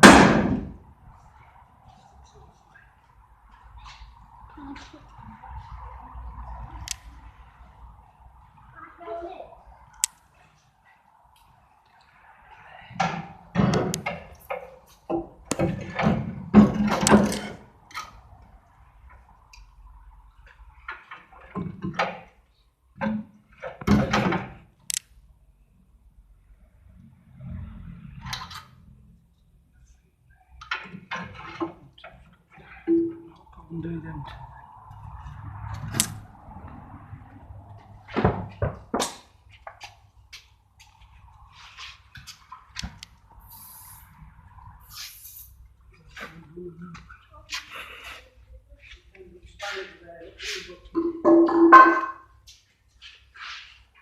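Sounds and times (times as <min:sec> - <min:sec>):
metal clanks and thuds: 0:00.0 - 0:00.8, 0:13.0 - 0:17.7.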